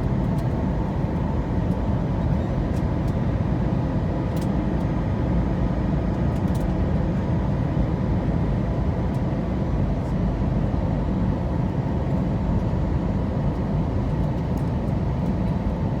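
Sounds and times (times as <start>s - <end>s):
aircraft cabin engine rumble: 0.0s - 16.0s.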